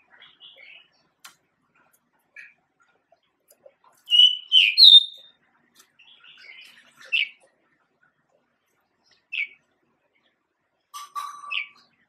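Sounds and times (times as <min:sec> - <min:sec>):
bird singing whistled notes: 0:04.1 - 0:05.3.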